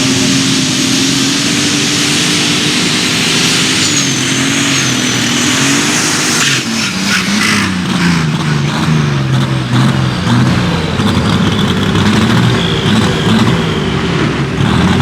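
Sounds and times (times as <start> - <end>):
thin high turbo whistle: 0.0 - 8.3, 12.1 - 14.9
tractor engine at high revs: 0.0 - 15.0.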